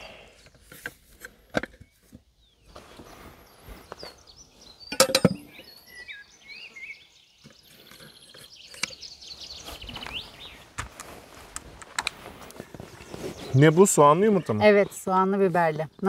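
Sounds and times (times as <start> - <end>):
songbird warbling: 3.5 - 10.6
dishes and glasses clinking: 4.9 - 5.6.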